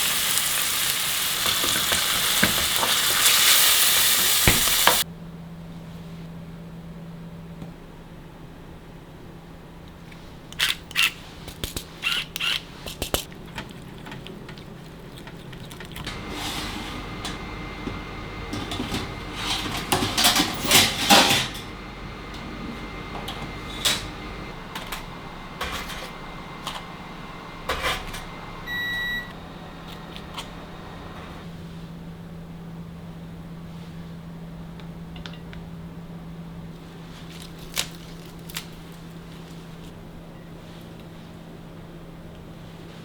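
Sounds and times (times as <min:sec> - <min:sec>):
kitchen clatter: 0:01.4 - 0:05.0, 0:11.7 - 0:26.9, 0:27.6 - 0:28.4
steady machine hum: 0:13.3 - 0:40.6
electronic appliance beep: 0:28.3 - 0:29.4.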